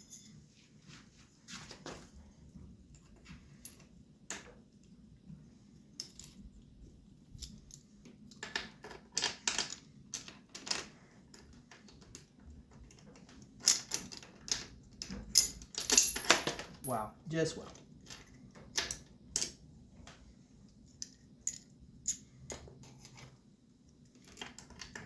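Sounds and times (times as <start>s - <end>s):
metal bolts clinking and rattling: 12.7s - 17.1s, 21.0s - 23.1s.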